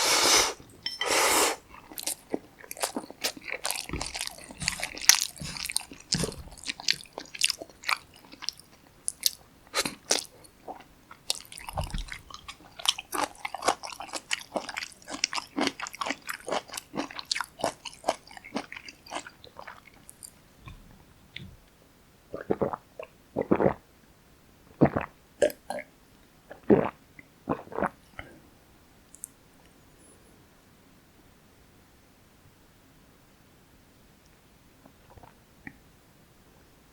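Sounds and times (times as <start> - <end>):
wet chewing and crunching: 1.7 - 20.4.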